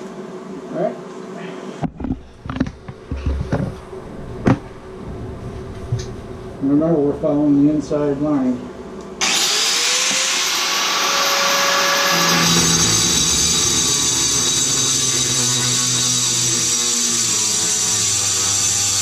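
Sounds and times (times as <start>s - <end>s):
power saw cutting tile: 9.2s - 19.0s.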